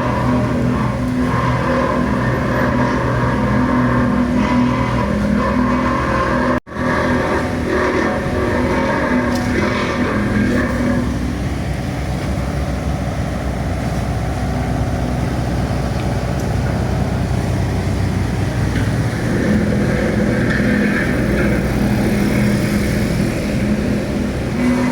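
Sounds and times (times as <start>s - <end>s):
engine running with low drone: 0.0s - 24.9s.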